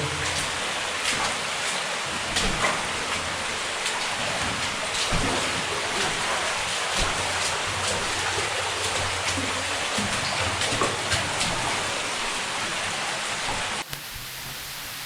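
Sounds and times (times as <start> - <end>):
water dripping and trickling: 0.0 - 15.0
steady hiss: 13.8 - 15.0.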